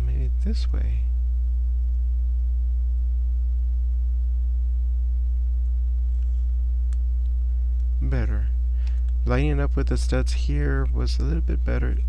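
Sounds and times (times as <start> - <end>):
low electrical mains hum: 0.0 - 12.0
faint click: 5.6 - 7.9, 8.8 - 9.2.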